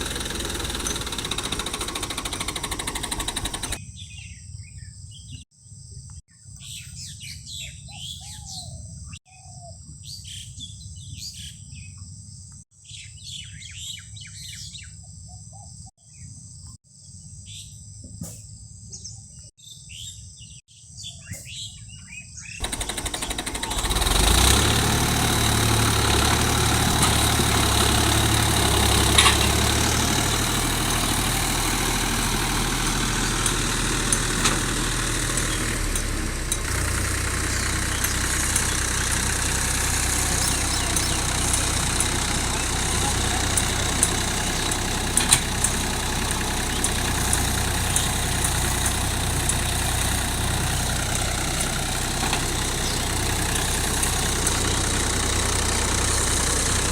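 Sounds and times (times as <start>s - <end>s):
motor humming: 0.0s - 3.8s, 22.6s - 56.9s.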